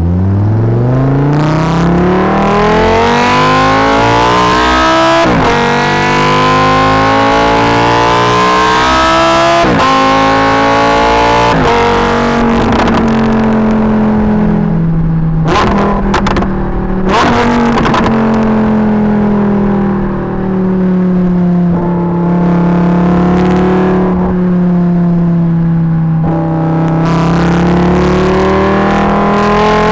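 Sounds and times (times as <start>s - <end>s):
sports car engine accelerating: 0.0s - 29.9s
exhaust crackles: 11.3s - 29.2s.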